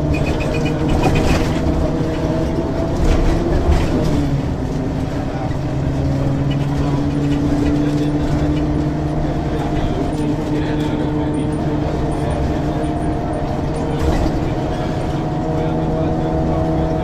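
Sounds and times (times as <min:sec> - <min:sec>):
rattles and clicks: 0:00.0 - 0:09.0
bus engine drone: 0:00.0 - 0:17.0.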